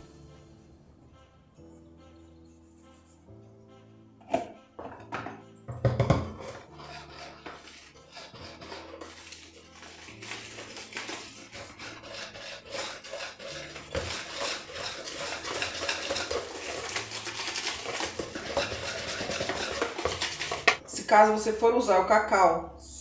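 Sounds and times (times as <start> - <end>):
hand sieve rasping: 5.8 - 20.8
whisk in batter: 6.4 - 20.8.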